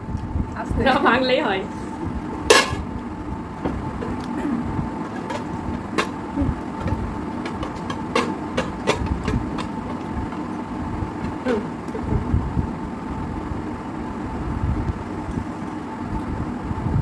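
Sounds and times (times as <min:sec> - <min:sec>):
steady low hum: 0:00.0 - 0:17.0
dishes clicking and tapping: 0:05.0 - 0:10.5.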